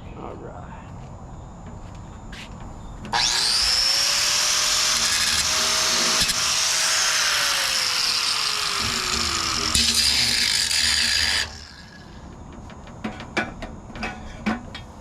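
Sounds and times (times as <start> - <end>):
hissing cutting noise: 3.1 - 12.2
power tool motor whine: 3.1 - 12.2.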